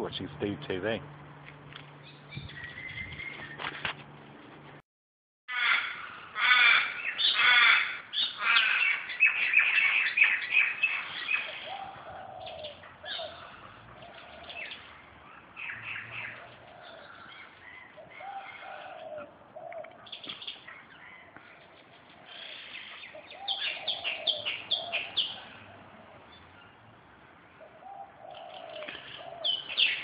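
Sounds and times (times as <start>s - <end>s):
small birds chirping: 1.8s - 3.8s, 8.1s - 30.0s
crows cawing: 5.5s - 14.8s, 15.6s - 20.0s, 20.6s - 25.9s, 27.8s - 30.0s
dove cooing: 8.3s - 30.0s.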